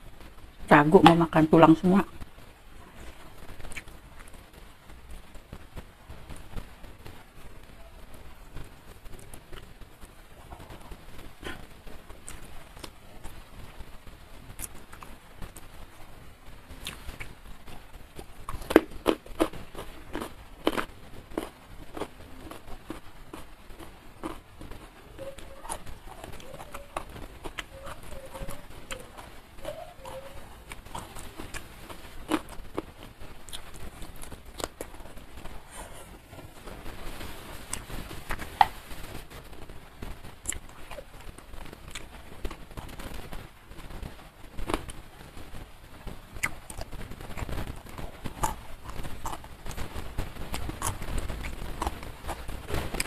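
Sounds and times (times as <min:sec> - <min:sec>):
person chewing food: 0:16.8 - 0:17.3, 0:18.2 - 0:29.3, 0:29.9 - 0:36.5, 0:48.3 - 0:49.8, 0:50.5 - 0:53.0.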